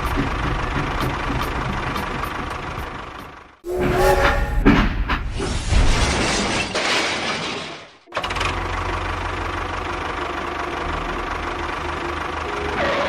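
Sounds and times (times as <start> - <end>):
rough engine running: 8.2 - 13.0.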